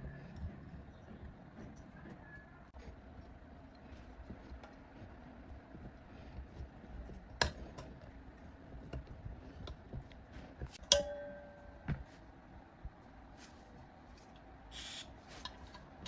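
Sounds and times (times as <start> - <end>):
ringing metal clink: 10.9 - 11.8.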